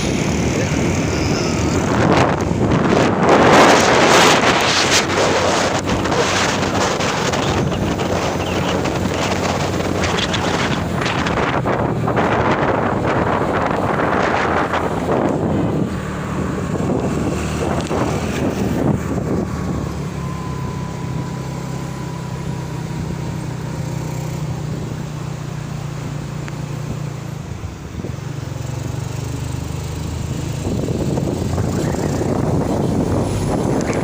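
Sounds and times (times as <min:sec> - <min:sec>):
road noise: 0:00.0 - 0:34.0
truck engine running: 0:00.0 - 0:34.0.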